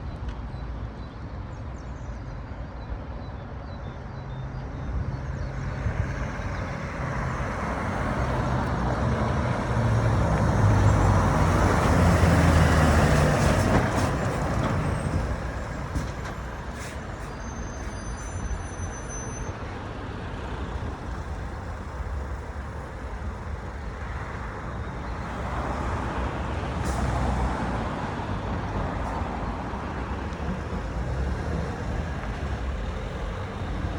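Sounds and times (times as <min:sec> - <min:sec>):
road traffic: 0:00.0 - 0:33.9
lorry engine driving past: 0:06.2 - 0:16.6.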